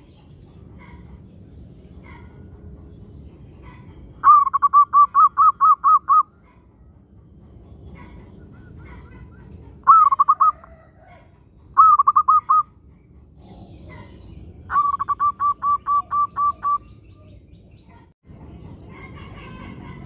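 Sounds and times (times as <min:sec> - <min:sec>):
dove cooing: 0:04.2 - 0:06.6, 0:08.0 - 0:12.7, 0:13.4 - 0:17.4.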